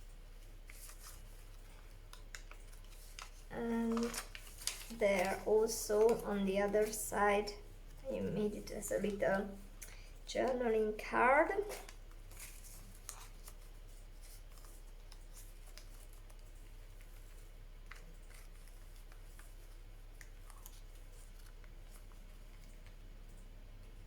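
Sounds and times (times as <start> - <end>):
paper pages rustling: 0.3 - 10.6, 11.5 - 23.0.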